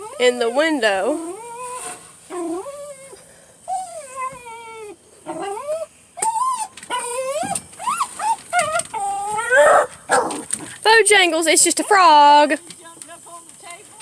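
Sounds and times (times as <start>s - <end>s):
dog whining and whimpering: 0.0s - 10.8s.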